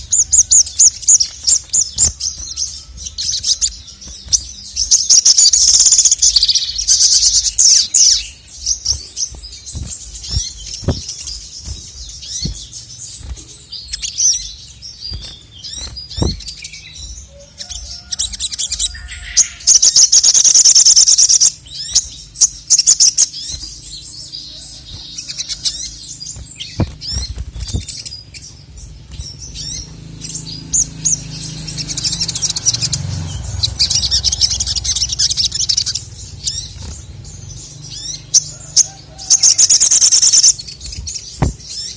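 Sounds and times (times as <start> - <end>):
bird singing high trills: 0.0 - 41.9.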